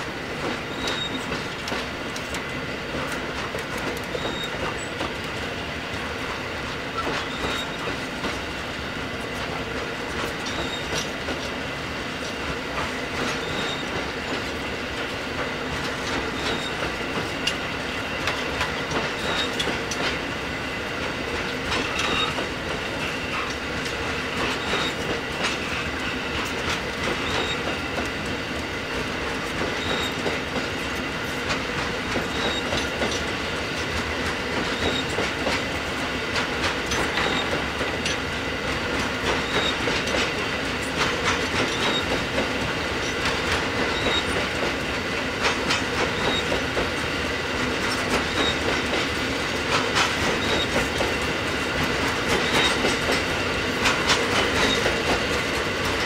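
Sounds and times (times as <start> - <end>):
wagon wheels clickety-clack: 18.2 - 20.2, 26.4 - 28.4, 29.4 - 30.7, 31.5 - 33.3, 34.0 - 35.6, 38.9 - 44.8, 45.4 - 47.0, 47.6 - 56.0.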